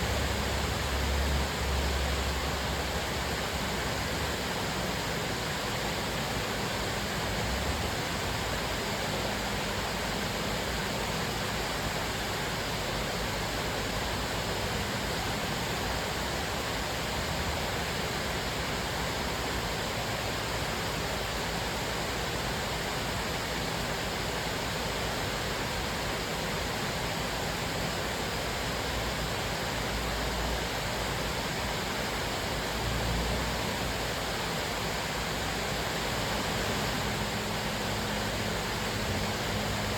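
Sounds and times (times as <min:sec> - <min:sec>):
waterfall rushing: 0:35.8 - 0:39.9.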